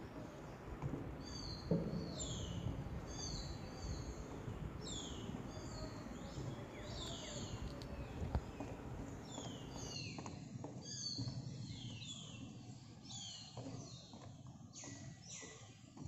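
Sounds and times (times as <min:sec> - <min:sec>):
birds whistling: 0:01.2 - 0:10.1.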